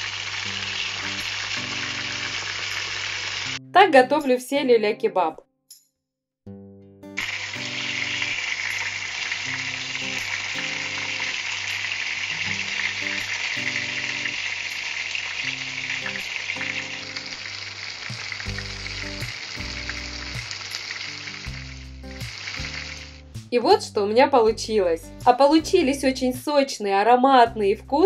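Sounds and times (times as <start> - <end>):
meat sizzling in oil: 0.0 - 3.6, 7.2 - 23.5
background melody: 18.1 - 26.4.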